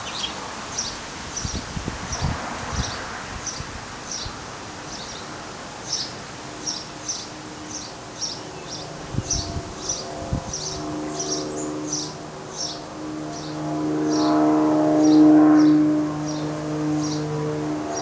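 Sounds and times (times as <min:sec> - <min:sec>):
small bird chirping: 0:05.9 - 0:12.8.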